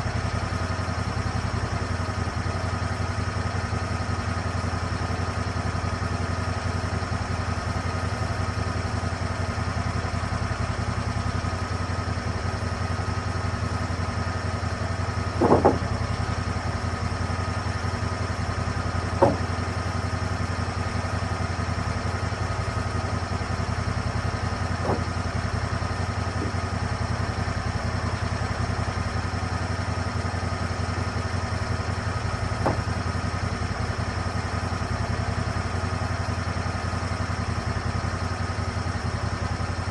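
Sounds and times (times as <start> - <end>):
petrol engine running: 0.0 - 39.9
short knocks: 15.3 - 16.2, 19.1 - 19.7, 24.8 - 25.3, 32.6 - 33.1.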